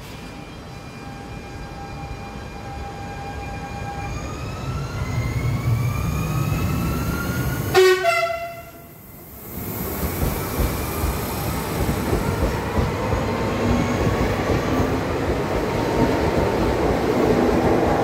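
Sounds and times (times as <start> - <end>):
train low rumble: 2.6 - 18.0
train horn toot: 7.7 - 8.9.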